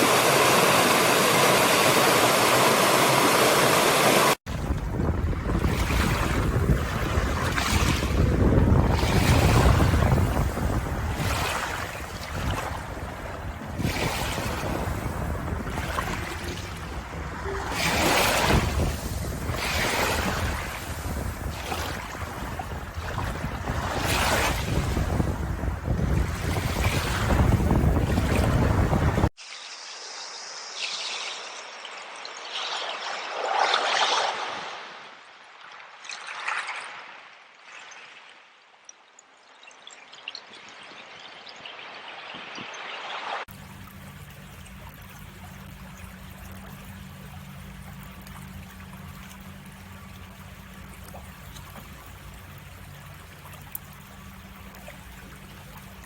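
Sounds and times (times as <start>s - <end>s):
wind noise: 0.0s - 29.3s
loud surf: 0.0s - 29.4s
water trickling and pouring: 0.0s - 34.2s, 37.4s - 56.0s
sea waves washing in: 0.0s - 38.3s, 41.0s - 56.0s.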